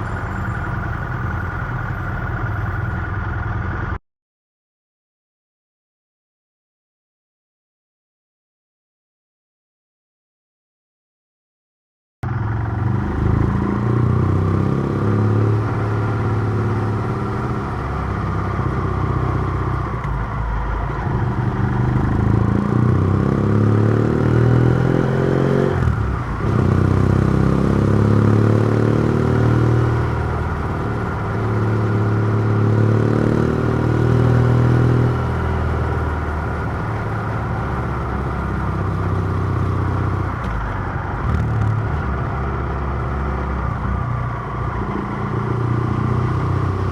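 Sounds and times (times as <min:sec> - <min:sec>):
motorcycle engine revving through gears: 0:12.2 - 0:46.9.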